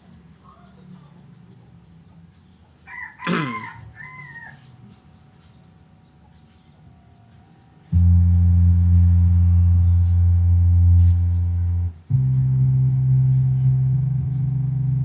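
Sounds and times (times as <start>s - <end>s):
low bass tones from speaker: 7.9s - 15.0s.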